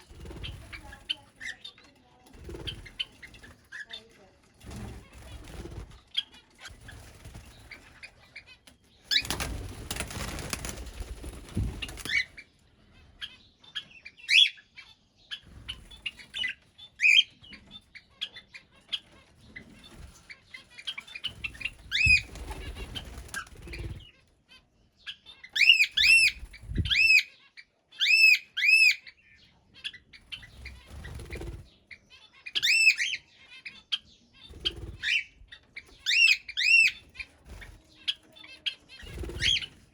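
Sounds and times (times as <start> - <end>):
birds flapping wings: 2.3 - 3.6, 4.6 - 8.0, 9.1 - 12.3, 21.3 - 24.0, 30.6 - 31.6, 39.0 - 39.9
bird chirps: 11.5 - 39.9
loud bird calls: 25.0 - 39.9.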